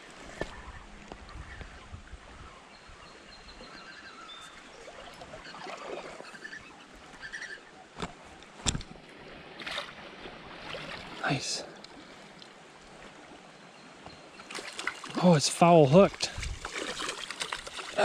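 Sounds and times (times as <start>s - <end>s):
faint bird chirps: 0.5s - 7.9s
creek flowing: 3.7s - 18.0s.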